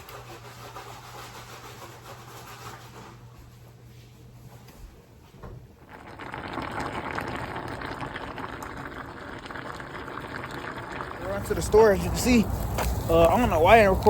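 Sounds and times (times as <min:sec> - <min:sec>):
food bubbling on stove: 0:05.7 - 0:14.0.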